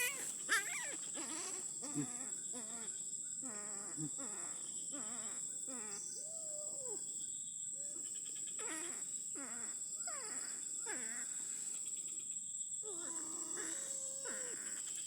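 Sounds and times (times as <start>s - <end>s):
animal crying: 0.0s - 5.4s, 12.8s - 14.9s.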